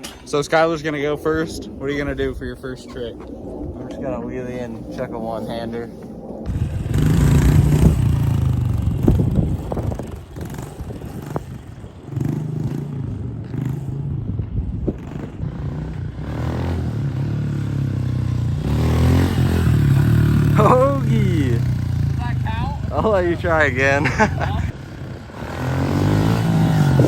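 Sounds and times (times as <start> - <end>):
motorbike engine revving: 6.5 - 27.0.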